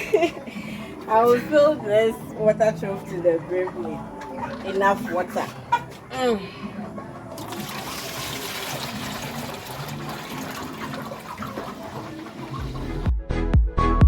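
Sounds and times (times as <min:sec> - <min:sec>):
water pouring into a trough: 0:07.3 - 0:13.0.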